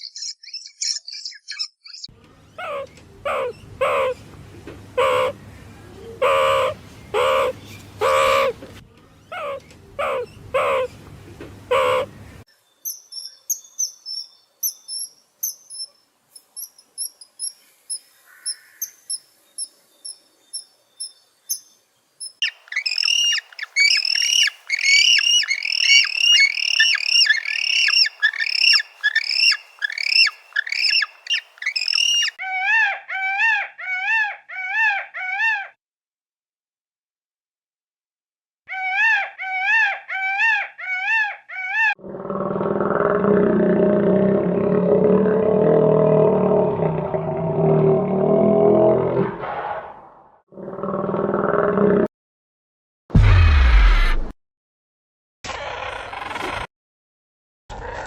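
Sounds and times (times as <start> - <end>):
animal calls: 2.6 - 4.2, 5.0 - 5.4, 6.0 - 8.6, 9.3 - 11.0, 11.7 - 12.1, 22.4 - 35.8.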